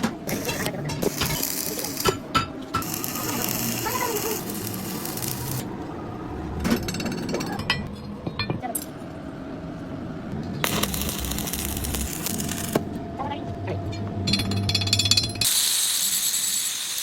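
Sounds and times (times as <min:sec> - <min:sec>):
harsh hissing noise: 0:02.8 - 0:05.7, 0:10.6 - 0:12.8.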